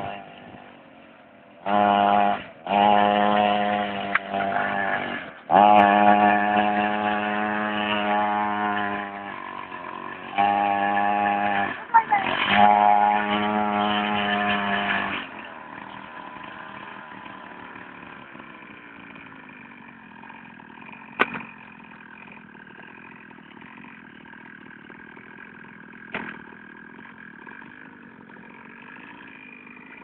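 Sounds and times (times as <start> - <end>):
pit bike engine running: 0.0 - 30.0.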